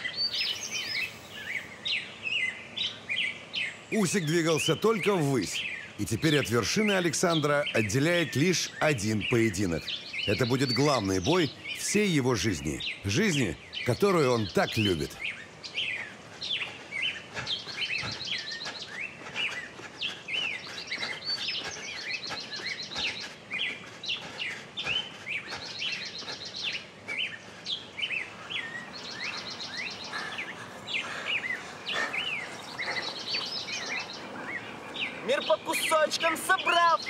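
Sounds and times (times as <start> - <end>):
birds chirping and whistling: 0.0 - 37.0
fast high bird trill: 24.8 - 37.0.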